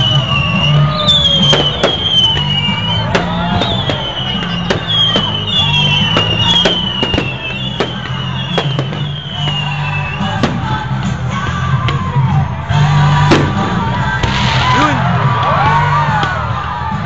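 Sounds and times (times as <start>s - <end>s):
falling firework whistles: 0.0s - 11.1s
fireworks bangs: 0.0s - 16.4s
loud music with heavy bass: 0.0s - 17.0s.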